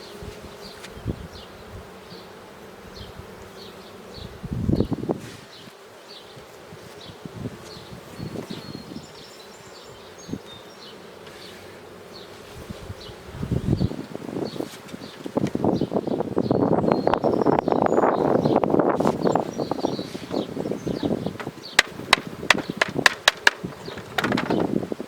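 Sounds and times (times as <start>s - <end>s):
honeybees buzzing: 0.0s - 25.0s
hive parts knocking and scraping: 18.9s - 25.0s.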